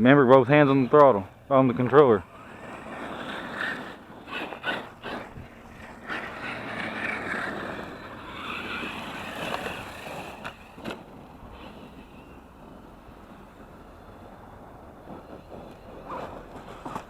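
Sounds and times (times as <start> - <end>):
electric motor whining: 2.2 - 14.2.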